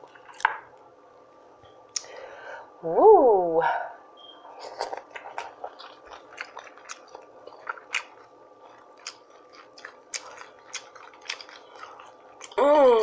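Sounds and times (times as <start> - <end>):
person chewing food: 4.6 - 13.0.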